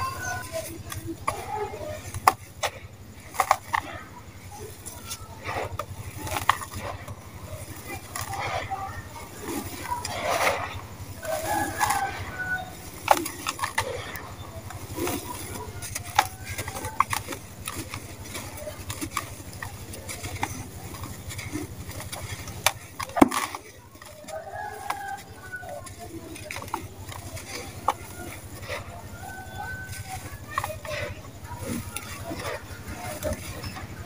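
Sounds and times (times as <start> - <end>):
sand-cement crunching in a tub: 0.0 - 34.0.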